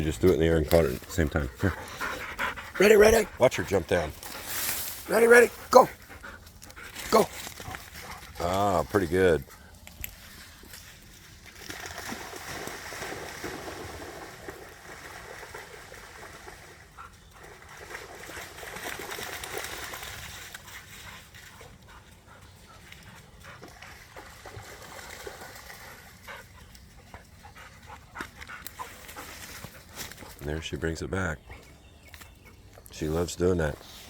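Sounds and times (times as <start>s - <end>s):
creek running: 0.0s - 33.8s
rustling: 4.0s - 5.1s
dog splashing through water: 11.4s - 21.8s, 22.7s - 26.5s.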